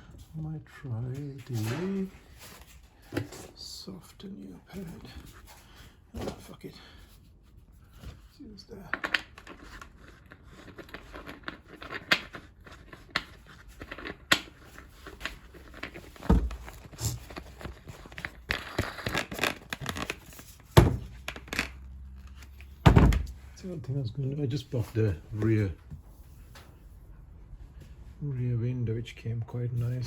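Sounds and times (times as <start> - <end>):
tearing and crinkling: 9.4 - 22.7
dull thumps: 22.8 - 23.4.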